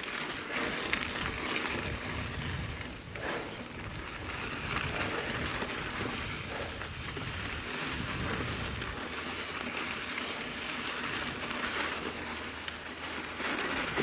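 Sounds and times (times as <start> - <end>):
bike rolling on dirt trail: 0.0 - 14.0
wind buffeting microphone: 0.6 - 9.6.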